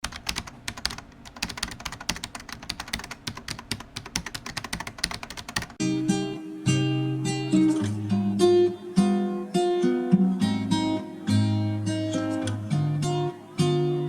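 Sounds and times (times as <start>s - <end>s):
typing clicks: 0.0s - 5.8s
plucked guitar music: 5.8s - 14.0s.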